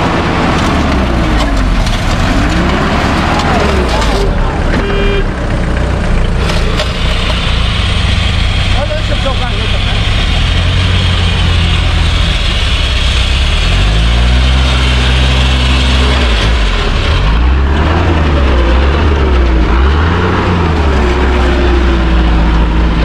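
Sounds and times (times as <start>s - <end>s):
off-road engines revving under load: 0.0s - 23.0s.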